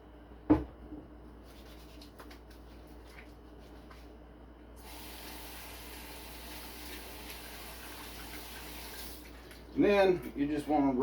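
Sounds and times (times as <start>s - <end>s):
water tap running: 4.8s - 9.5s.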